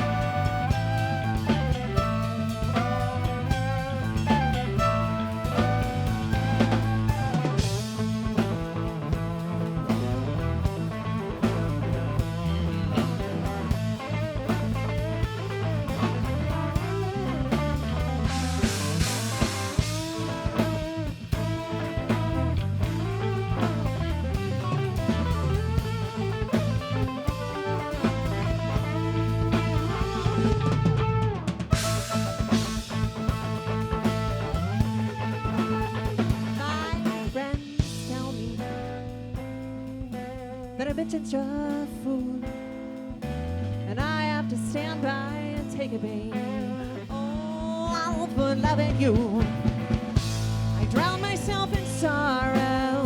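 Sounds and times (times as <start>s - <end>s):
rock band playing: 0.0s - 53.0s.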